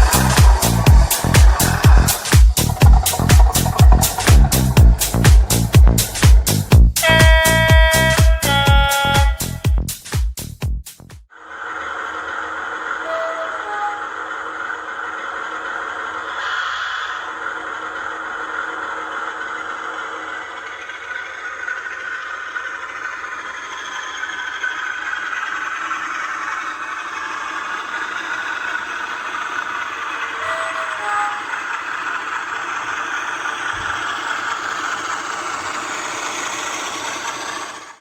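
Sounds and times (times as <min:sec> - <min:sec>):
diesel engine sound from small speaker: 0:00.0 - 0:09.9, 0:26.2 - 0:36.4.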